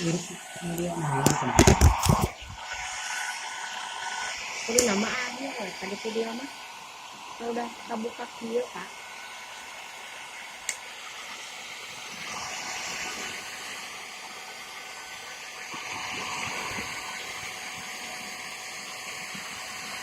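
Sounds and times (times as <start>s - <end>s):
hair dryer blowing: 0.0s - 20.0s.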